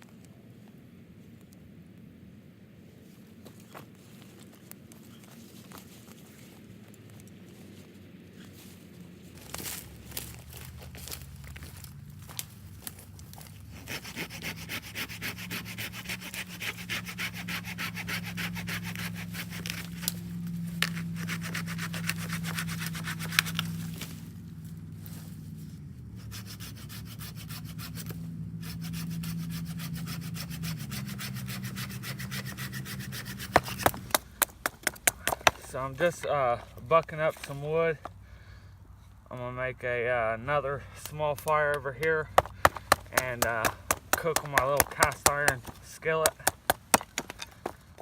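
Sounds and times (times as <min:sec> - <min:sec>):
hand saw cutting wood: 0:12.3 - 0:24.3, 0:26.2 - 0:36.3, 0:41.1 - 0:47.8.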